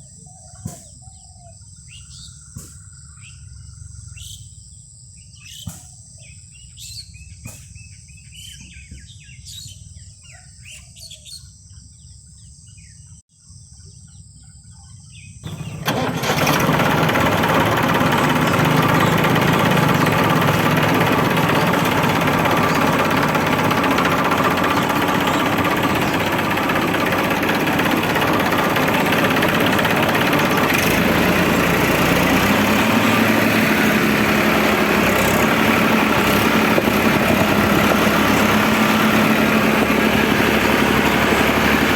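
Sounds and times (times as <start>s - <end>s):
birds chirping: 15.0s - 41.9s
loud motor running: 15.4s - 41.9s.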